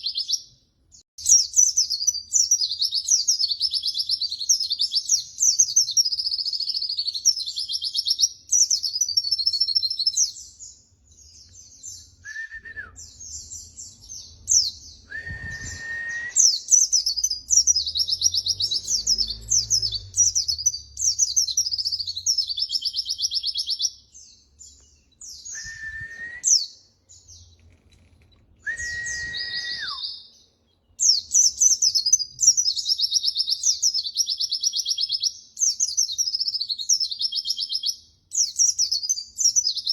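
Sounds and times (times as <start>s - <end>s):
bird twittering song: 0.0s - 39.9s
low whistled note: 15.1s - 16.4s.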